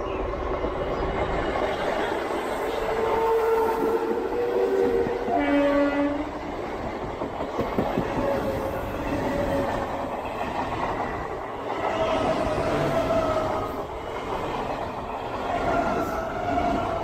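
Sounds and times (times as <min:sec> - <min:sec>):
train passing: 0:00.0 - 0:17.0
train horn blast: 0:03.0 - 0:06.3
rail-joint clacks: 0:06.4 - 0:17.0.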